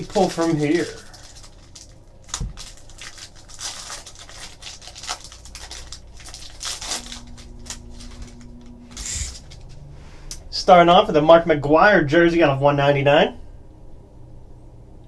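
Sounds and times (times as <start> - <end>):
plastic wrapping crinkling and tearing: 0.0 - 9.8
faint steady hum: 0.0 - 15.0.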